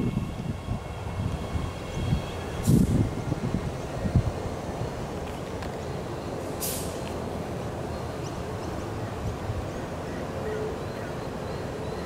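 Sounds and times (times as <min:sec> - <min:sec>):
electric train rumbling: 0:00.0 - 0:12.0
air hiss: 0:06.5 - 0:07.1.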